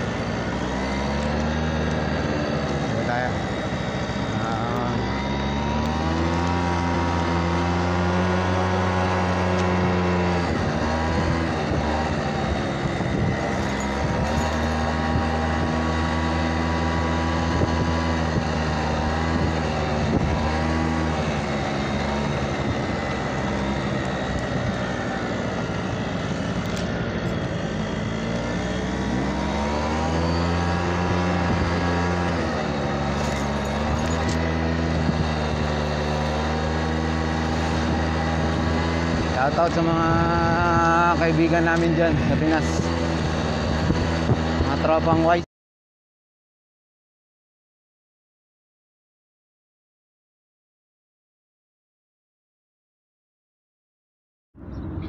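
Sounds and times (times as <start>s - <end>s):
small motorbike engine running: 0.0s - 45.4s
wind noise on microphone: 8.9s - 28.3s, 30.4s - 36.1s, 36.9s - 41.3s, 42.1s - 45.4s.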